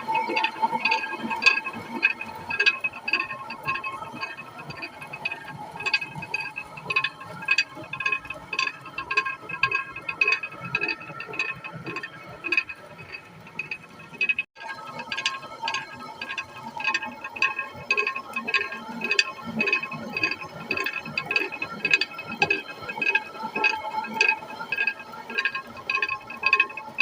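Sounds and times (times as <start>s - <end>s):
mill clacking: 0.0s - 27.0s.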